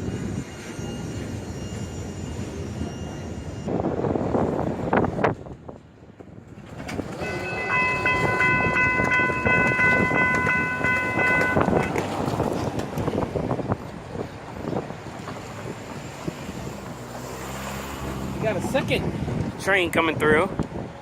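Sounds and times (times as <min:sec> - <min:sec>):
train wheels rumbling and clicking: 0:00.0 - 0:17.3
train horn blast: 0:07.2 - 0:12.1.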